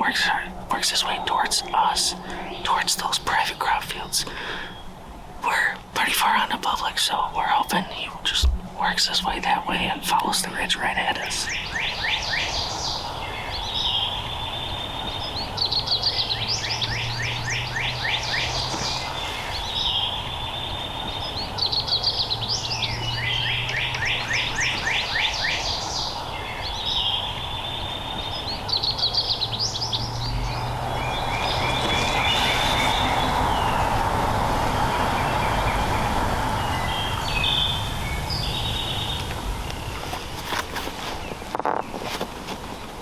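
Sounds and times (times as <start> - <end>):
outdoor background noise: 0.0 - 43.0
songbird trilling: 11.1 - 40.4.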